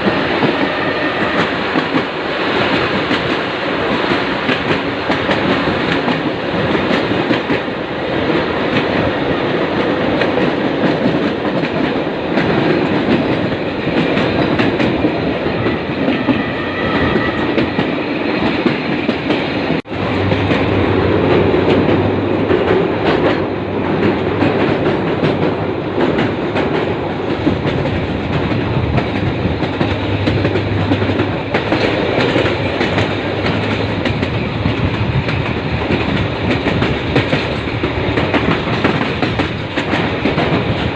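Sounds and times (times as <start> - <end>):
train wheels rumbling and rattling: 0.0 - 40.9.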